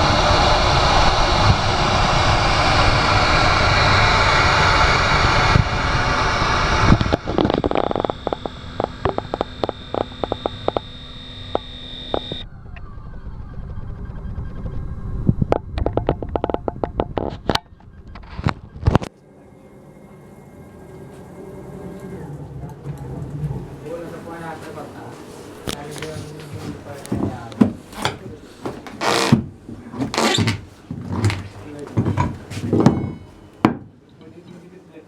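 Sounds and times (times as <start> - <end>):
router spindle cutting wood: 0.0 - 12.4
high whine: 0.0 - 29.5, 30.1 - 33.8
sharp clicks: 7.1 - 12.4.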